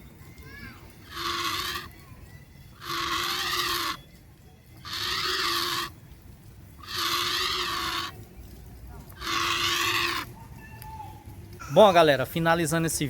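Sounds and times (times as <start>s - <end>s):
animal harsh wavering call: 1.1s - 1.9s, 2.8s - 4.0s.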